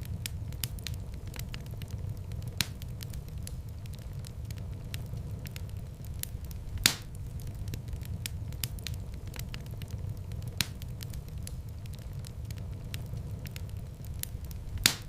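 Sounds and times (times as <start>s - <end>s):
wood fire crackling: 0.0s - 15.0s
sharp wood snap: 6.8s - 7.1s
loud fire pop: 6.8s - 7.2s, 14.8s - 15.0s.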